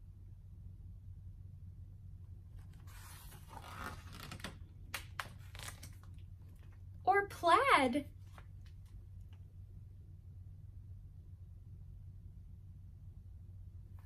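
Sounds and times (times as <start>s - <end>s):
steady low hum: 0.0s - 14.0s
book pages turning: 2.6s - 6.8s.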